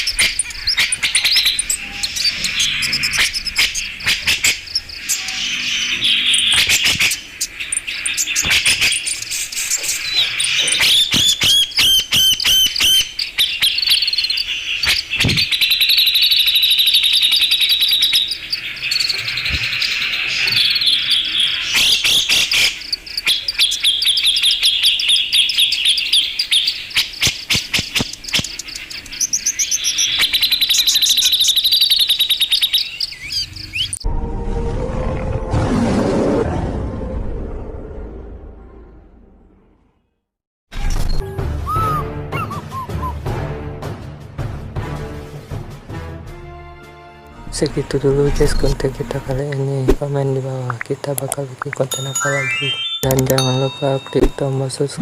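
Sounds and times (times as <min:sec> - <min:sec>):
bird chattering and trilling: 0:00.0 - 0:34.0, 0:41.7 - 0:43.2
sharp clicks: 0:27.2 - 0:29.2.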